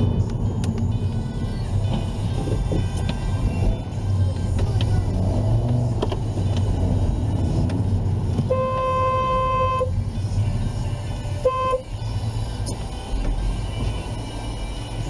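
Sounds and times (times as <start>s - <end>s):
road and engine rumble: 0.0s - 15.0s
car horn honking: 8.4s - 10.0s, 11.4s - 12.0s.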